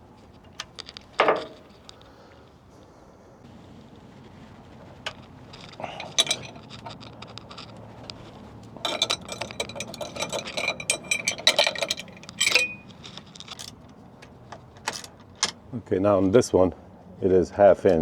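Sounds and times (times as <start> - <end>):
metal hand tools clinking: 0.6 - 1.9, 4.9 - 15.6.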